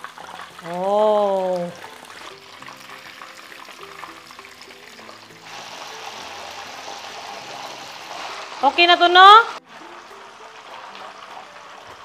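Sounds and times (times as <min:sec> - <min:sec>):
chicken frying in oil: 0:00.0 - 0:12.0
soft background music: 0:00.0 - 0:12.0.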